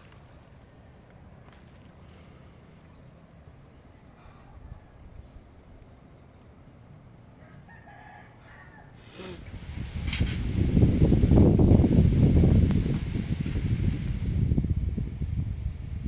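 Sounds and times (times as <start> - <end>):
quiet rural ambience: 0.0 - 16.0
rooster crowing faintly: 7.4 - 9.3.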